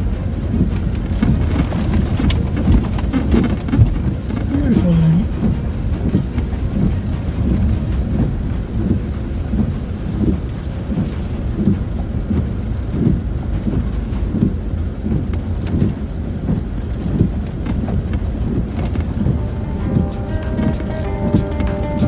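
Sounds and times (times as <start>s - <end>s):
tyres and suspension knocking: 0.0s - 10.4s, 11.4s - 22.0s
vehicle cabin rumble: 0.0s - 22.0s.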